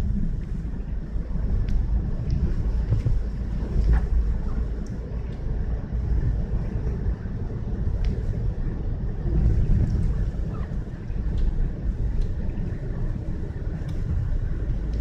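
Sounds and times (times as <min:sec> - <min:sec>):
faint ticks: 0:01.5 - 0:05.5, 0:07.8 - 0:08.4, 0:11.2 - 0:15.0.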